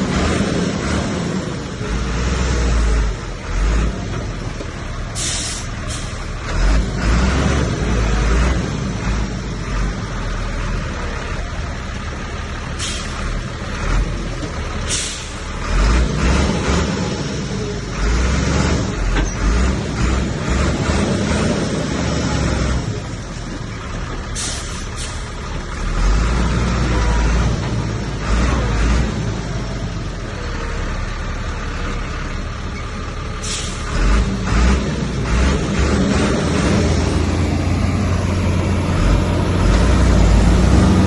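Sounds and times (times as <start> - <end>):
heavy diesel machinery rumbling: 0.0 - 41.0
short hissing bursts: 5.2 - 6.1.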